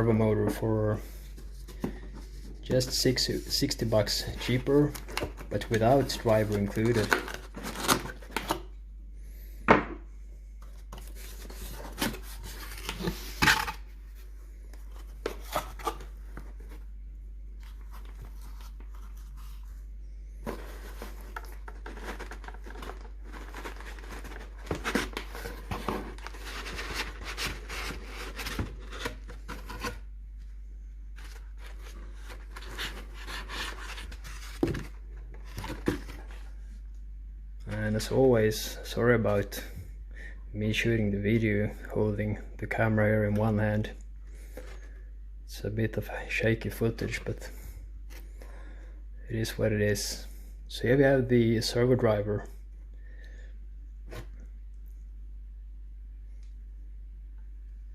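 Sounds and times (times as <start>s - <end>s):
packaging rustling and tearing: 4.4s - 8.6s, 11.0s - 13.8s, 20.5s - 30.0s, 31.2s - 36.4s.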